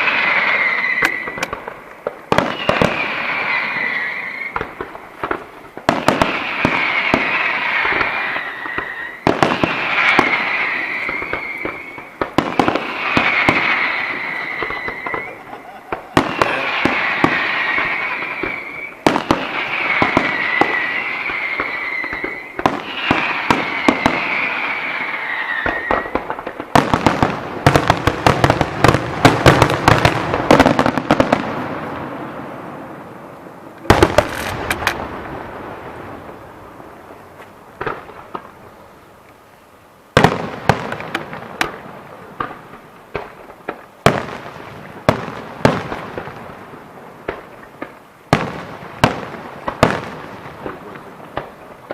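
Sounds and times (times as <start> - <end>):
whistling firework shells: 0.0 - 32.1
loud firework reports: 0.0 - 37.2
crackling firework bursts: 0.0 - 51.9.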